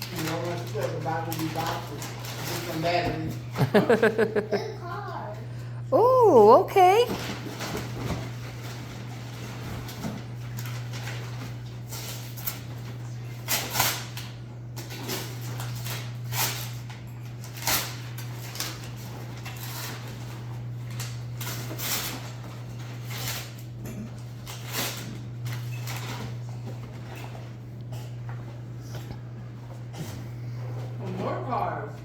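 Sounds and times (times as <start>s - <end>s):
wrapping paper ripping and crumpling: 0.0s - 3.0s, 7.2s - 26.4s.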